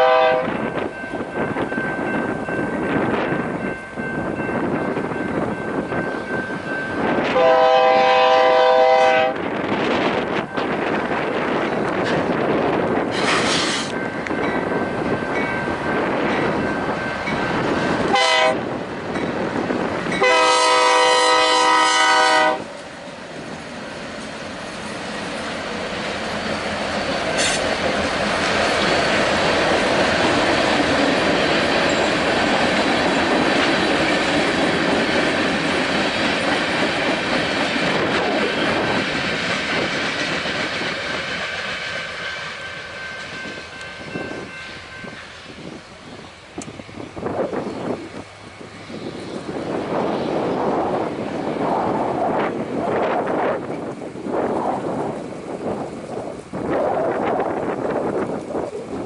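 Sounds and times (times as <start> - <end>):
locomotive air horn: 0.0 - 0.6, 7.3 - 9.4, 18.1 - 18.7, 20.2 - 22.7, 27.4 - 27.7
freight train rolling past: 0.0 - 59.0.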